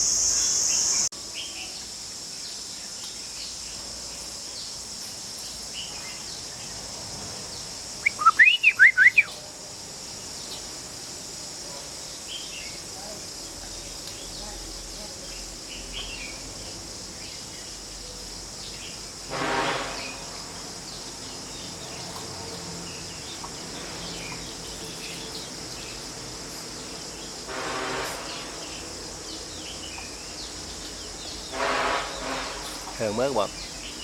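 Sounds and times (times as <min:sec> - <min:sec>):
insects droning: 0:00.0 - 0:34.0
bird chirps: 0:08.0 - 0:09.4.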